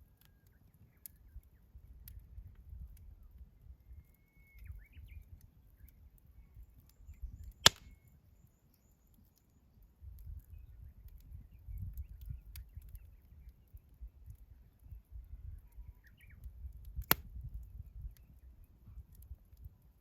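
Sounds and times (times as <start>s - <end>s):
campfire crackling: 7.6s - 7.9s
loud pop of firewood: 7.6s - 7.9s.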